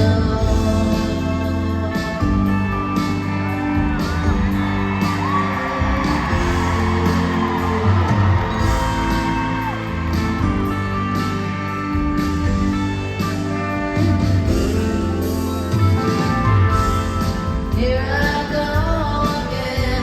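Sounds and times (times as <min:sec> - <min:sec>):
live band music: 0:00.0 - 0:20.0
fans whooping and yelling: 0:02.7 - 0:14.9.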